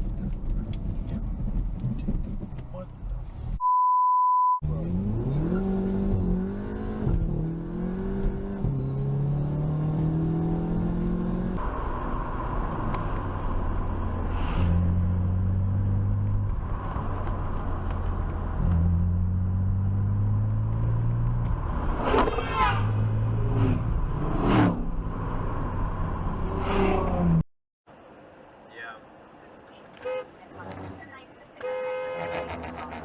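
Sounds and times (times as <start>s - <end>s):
short one-tone beep: 3.6s - 4.6s
car engine accelerating: 4.6s - 27.4s.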